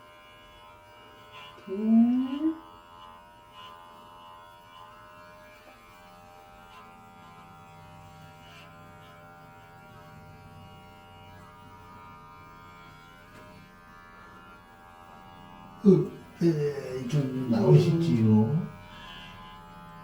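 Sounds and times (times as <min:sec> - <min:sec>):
electric hair clipper running: 0:00.0 - 0:20.0.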